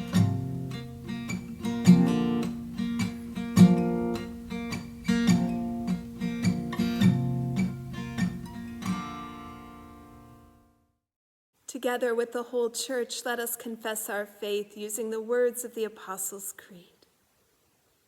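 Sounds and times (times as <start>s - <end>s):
acoustic guitar playing: 0.0s - 10.8s.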